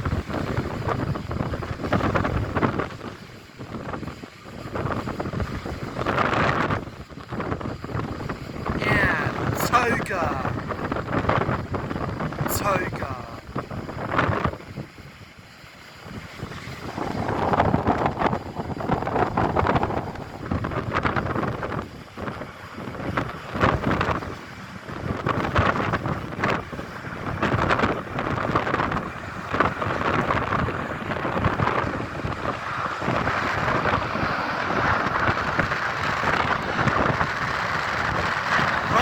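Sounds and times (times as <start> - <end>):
wind buffeting microphone: 0.0 - 9.6, 10.4 - 12.5, 13.4 - 39.0.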